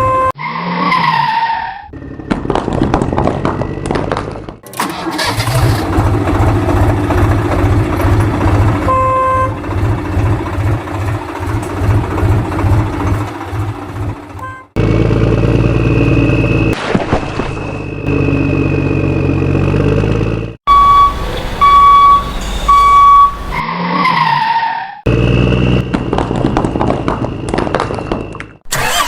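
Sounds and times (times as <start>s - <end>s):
short falling tone: 20.7s - 23.6s
loud beeps: 20.7s - 23.7s.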